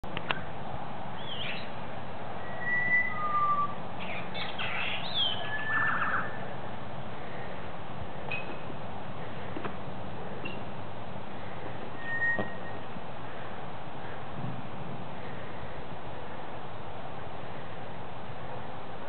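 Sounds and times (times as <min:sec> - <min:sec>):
steady background hiss: 0:00.1 - 0:19.0
small birds chirping and whistling: 0:01.2 - 0:01.8, 0:02.4 - 0:06.4, 0:12.0 - 0:12.8.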